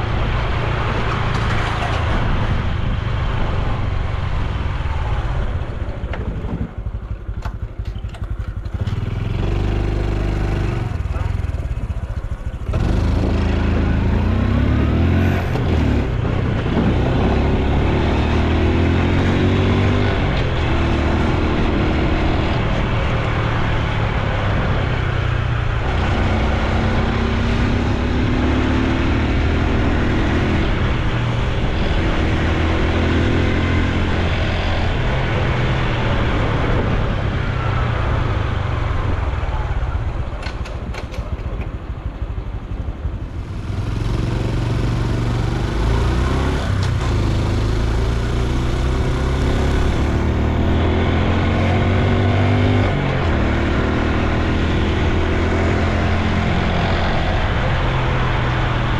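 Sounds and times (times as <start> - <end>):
motorcycle engine accelerating: 0.0 - 58.9
wind on microphone: 10.6 - 18.8.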